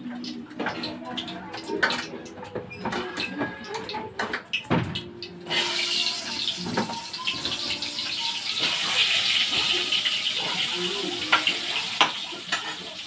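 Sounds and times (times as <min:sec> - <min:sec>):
slices frying in hot oil: 0:05.0 - 0:13.0.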